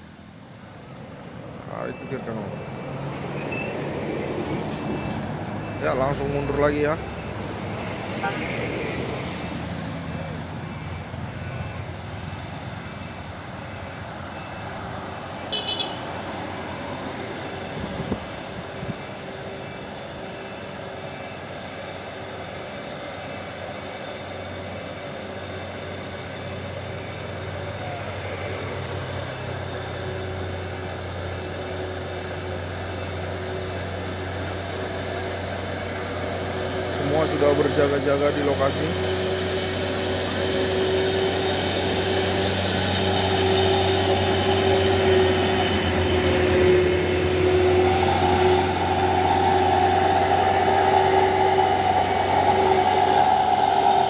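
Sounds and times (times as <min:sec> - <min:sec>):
truck engine running under load: 0:16.2 - 0:54.0.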